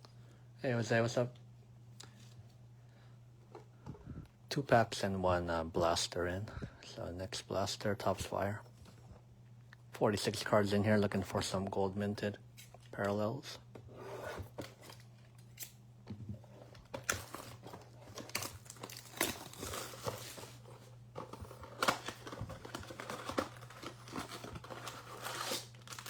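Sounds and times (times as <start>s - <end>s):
wrapper crinkling: 16.9s - 26.0s
cardboard tearing: 17.0s - 26.0s.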